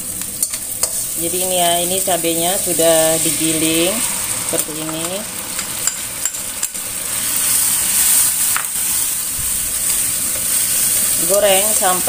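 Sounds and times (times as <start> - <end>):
paste and onions sizzling in oil: 0.0 - 12.0
utensil clicking on pan: 0.2 - 1.0.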